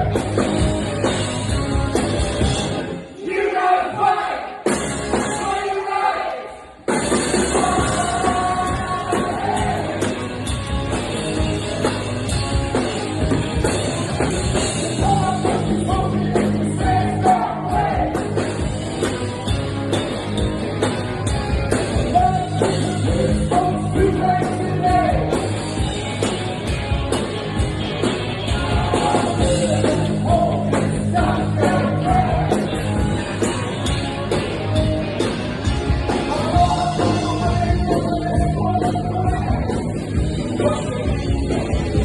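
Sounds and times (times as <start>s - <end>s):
drums keeping a steady beat: 0.0s - 3.0s, 4.6s - 5.7s, 6.8s - 42.0s
electric guitar: 0.0s - 3.1s, 6.8s - 42.0s
bass guitar: 0.0s - 3.2s, 4.6s - 5.7s, 6.7s - 42.0s
rock band playing live: 0.0s - 3.2s, 4.5s - 5.9s, 6.5s - 42.0s
lead vocalist singing: 7.4s - 10.2s, 15.0s - 18.3s, 22.1s - 25.4s, 28.4s - 32.7s, 36.2s - 39.8s.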